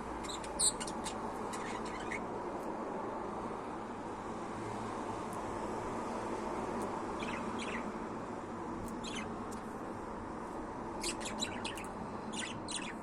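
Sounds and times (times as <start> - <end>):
budgerigar chirping: 0.2 - 2.2, 7.2 - 7.9, 9.0 - 9.3, 11.0 - 13.0.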